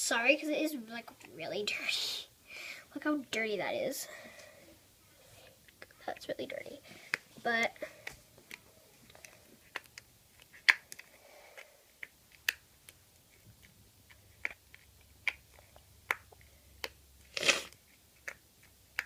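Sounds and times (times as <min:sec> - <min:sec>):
slime clicking in hands: 0:09.7 - 0:11.1, 0:12.0 - 0:13.0, 0:13.6 - 0:17.0, 0:18.1 - 0:19.0.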